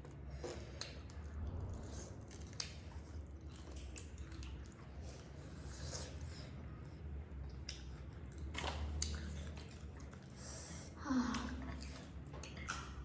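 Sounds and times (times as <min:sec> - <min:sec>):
chewing with wet mouth clicks: 0:00.0 - 0:13.0.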